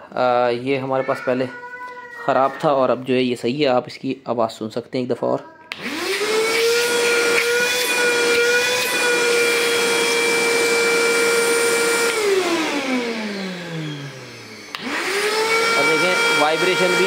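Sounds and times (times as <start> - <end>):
vacuum cleaner motor whine: 5.7 - 17.0.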